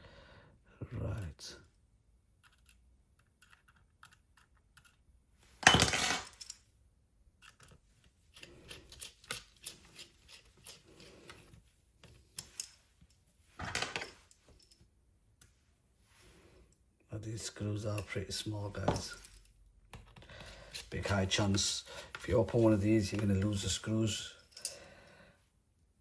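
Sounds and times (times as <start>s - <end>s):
metal parts clinking on workbench: 5.6s - 6.6s, 13.6s - 14.8s.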